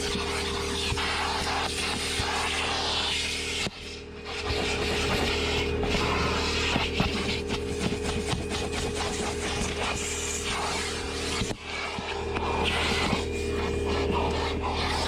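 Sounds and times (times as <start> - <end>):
nozzle scraping over carpet: 0.0 - 15.0
vacuum cleaner motor hum: 0.0 - 15.0.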